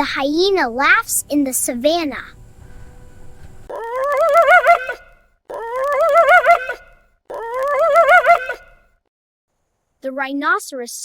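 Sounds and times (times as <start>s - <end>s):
hyena giggling calls: 3.7s - 8.8s.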